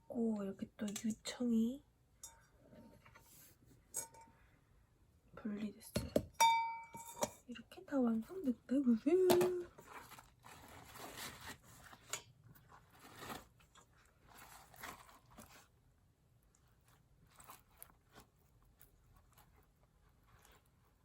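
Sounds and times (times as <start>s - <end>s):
clicks and rustles of handling: 9.1s - 15.8s.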